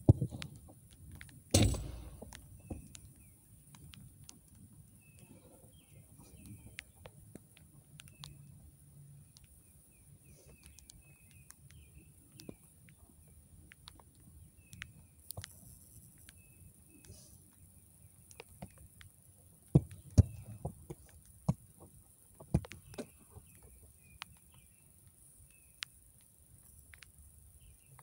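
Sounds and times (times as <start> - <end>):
faint clicks: 0.3 - 28.0
loud thump: 1.6 - 2.4
birds chirping: 4.7 - 7.1, 8.0 - 15.2, 22.6 - 25.8.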